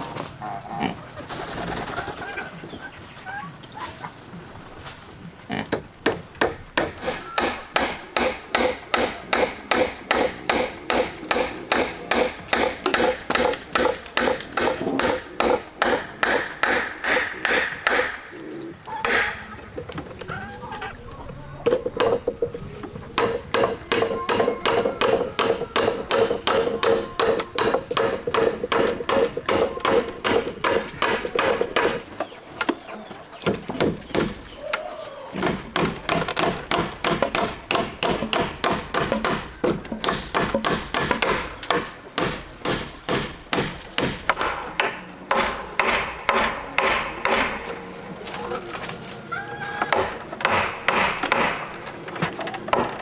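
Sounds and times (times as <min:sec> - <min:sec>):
hammer striking wood: 0:05.7 - 0:18.2, 0:19.0 - 0:19.3, 0:21.6 - 0:22.2, 0:23.2 - 0:32.0, 0:33.4 - 0:34.4, 0:35.4 - 0:47.7, 0:49.9 - 0:51.7.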